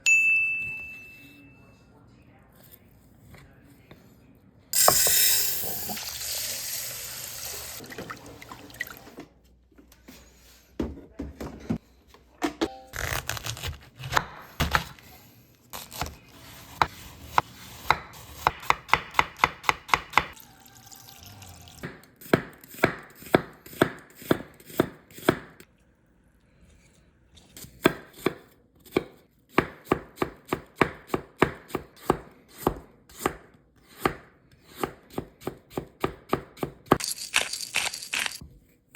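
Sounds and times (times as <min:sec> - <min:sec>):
knife chopping on cutting board: 0:13.3 - 0:15.0, 0:15.8 - 0:20.4, 0:21.8 - 0:25.6, 0:27.8 - 0:37.0.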